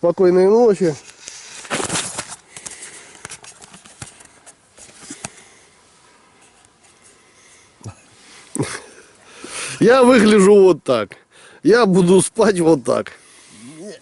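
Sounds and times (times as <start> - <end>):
tent fabric rustling: 1.0 - 5.3.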